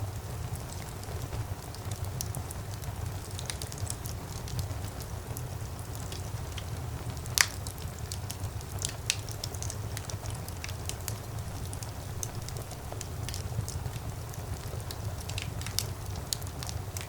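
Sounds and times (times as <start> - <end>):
fireplace fire crackling: 0.0 - 17.0
low rumble of flames: 0.0 - 17.0
loud fire pop: 1.0 - 2.5.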